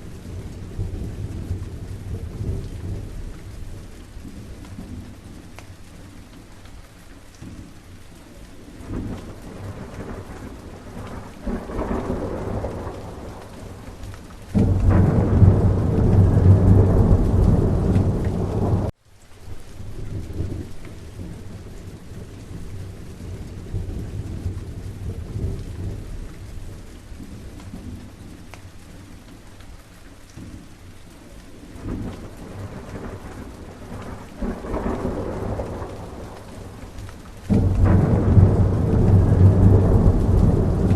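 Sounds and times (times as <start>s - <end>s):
steady rain: 0.0s - 40.9s
rolling thunder: 8.8s - 18.9s, 19.8s - 28.2s, 31.8s - 40.9s
loud thunder clap: 14.5s - 18.9s, 37.5s - 40.9s.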